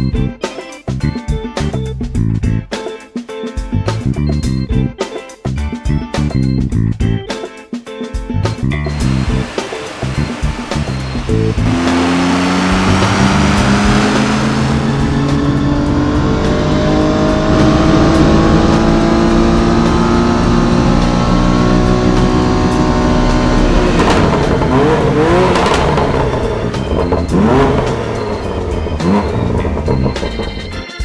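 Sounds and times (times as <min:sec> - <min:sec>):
car engine full-throttle pull: 0:08.9 - 0:30.8
engine revving: 0:08.9 - 0:30.8.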